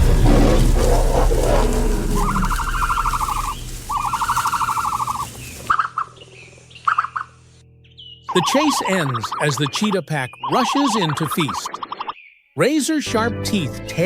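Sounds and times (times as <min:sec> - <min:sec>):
bird calling in pulsed trills: 0:00.6 - 0:12.6
background music: 0:13.1 - 0:14.0.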